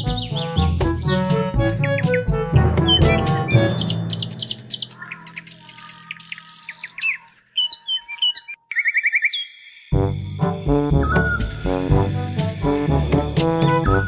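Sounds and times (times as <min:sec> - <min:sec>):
music track: 0:00.0 - 0:05.7, 0:10.2 - 0:14.0
birds chirping: 0:00.0 - 0:09.9.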